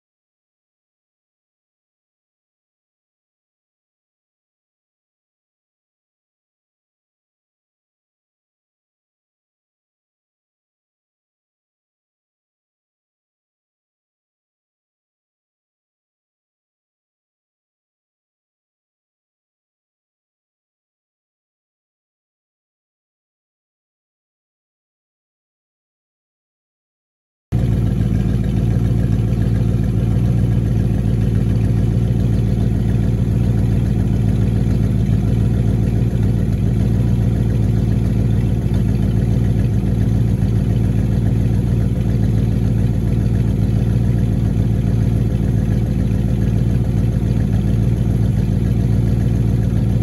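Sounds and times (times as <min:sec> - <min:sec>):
car engine idling: 0:27.5 - 0:50.0.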